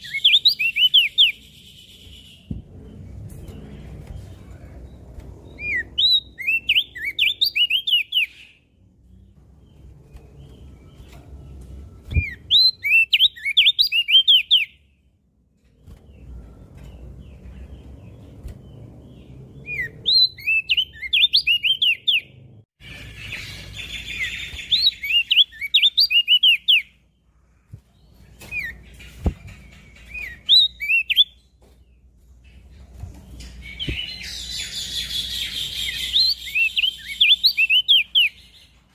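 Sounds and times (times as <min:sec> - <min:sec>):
bird singing whistled phrases: 0:00.0 - 0:02.6, 0:05.6 - 0:08.6, 0:12.1 - 0:14.8, 0:19.7 - 0:22.3, 0:23.3 - 0:26.9, 0:30.2 - 0:31.4, 0:33.7 - 0:38.5.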